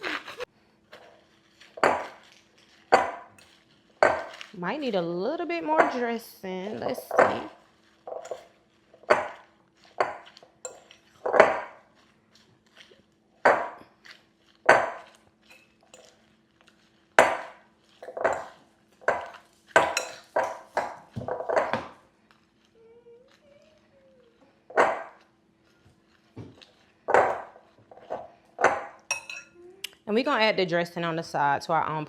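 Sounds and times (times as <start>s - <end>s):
utensils clinking against salad bowl: 1.7s - 11.8s, 13.5s - 16.3s, 17.2s - 22.0s, 26.5s - 29.6s.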